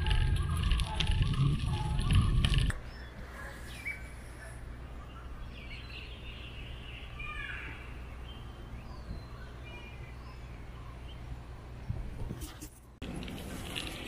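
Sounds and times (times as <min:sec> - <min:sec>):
bicycle rattling: 0:00.0 - 0:02.8, 0:12.4 - 0:14.0
wind rumble: 0:00.0 - 0:05.1
birds chirping: 0:00.0 - 0:12.2.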